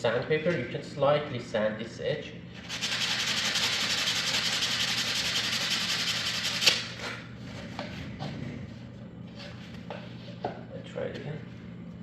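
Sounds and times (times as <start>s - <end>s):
sandpaper rubbing on wood: 2.6s - 6.8s.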